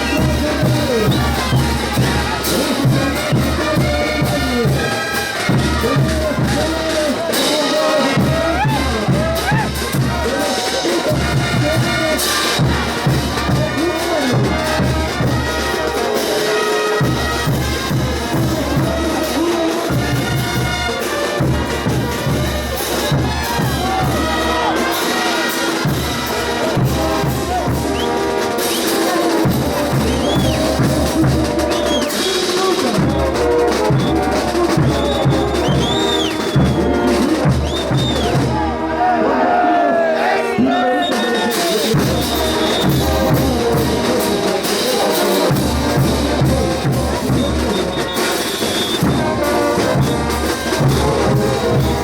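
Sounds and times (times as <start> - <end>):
pounding bass drum: 0.0 - 7.3, 8.1 - 15.6, 29.4 - 32.0, 41.9 - 44.7, 45.4 - 48.2, 48.9 - 52.0
brass band playing: 0.0 - 52.0
crowd noise: 0.0 - 52.0.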